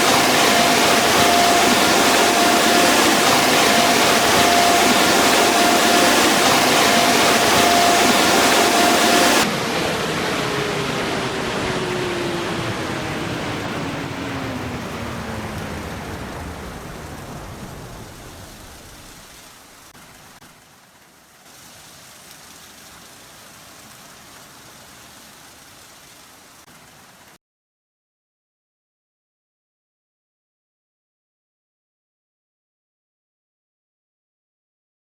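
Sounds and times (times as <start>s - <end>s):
fan hum falling in pitch: 0.0s - 19.4s
dryer blowers rushing air: 0.0s - 19.9s.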